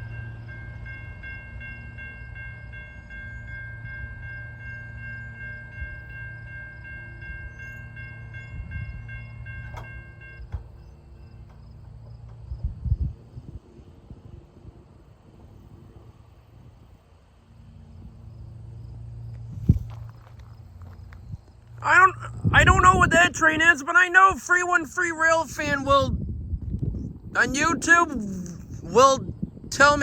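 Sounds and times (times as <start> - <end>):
crossing bell ringing: 0.0 - 11.9
train cars rumbling past: 0.0 - 24.3.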